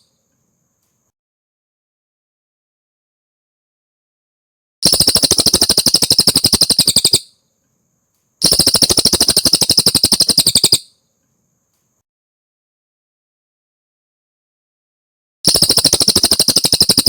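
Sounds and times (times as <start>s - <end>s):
bird singing rapid trills: 4.8s - 7.5s, 8.4s - 11.1s, 15.5s - 17.0s.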